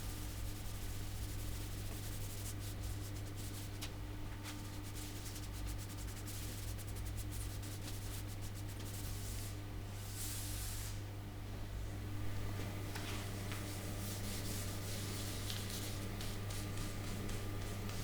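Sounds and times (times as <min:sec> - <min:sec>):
hand rubbing wood: 0:13.0 - 0:18.0.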